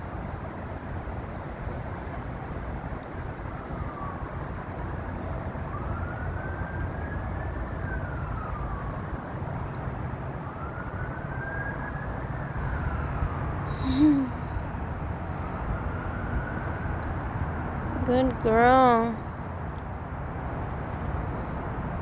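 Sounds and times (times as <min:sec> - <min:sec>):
siren wailing: 0:03.5 - 0:14.5.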